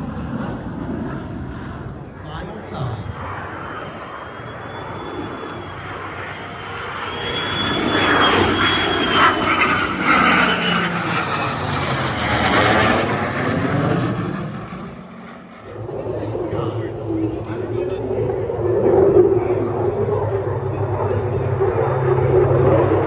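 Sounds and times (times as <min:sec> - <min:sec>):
airplane flying past: 0:00.0 - 0:23.0
steady high whistle: 0:03.5 - 0:09.8.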